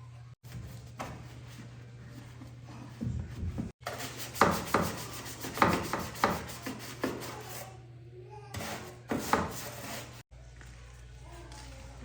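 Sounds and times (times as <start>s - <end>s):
knocks and scraping on wood: 0.5s - 7.5s.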